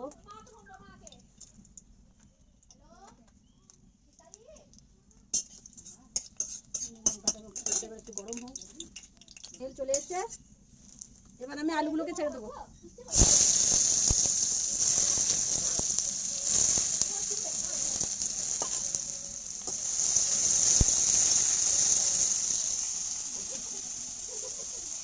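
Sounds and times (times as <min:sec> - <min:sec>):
spatula clinking on pan: 0:06.2 - 0:10.1, 0:17.8 - 0:19.9
potatoes sizzling in hot oil: 0:13.1 - 0:25.0.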